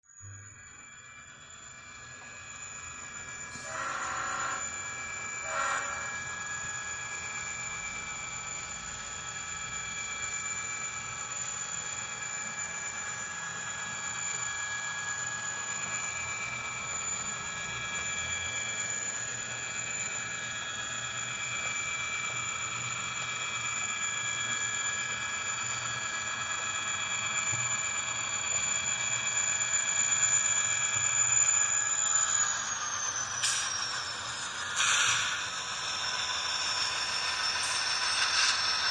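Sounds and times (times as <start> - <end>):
high whine: 0.2 - 11.6, 30.0 - 38.9
short horn blasts: 3.7 - 4.6.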